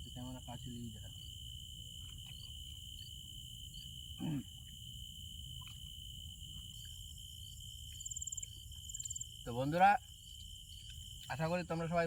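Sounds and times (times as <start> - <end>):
crickets chirring: 0.0 - 12.0
low grunt-like call: 4.2 - 4.5.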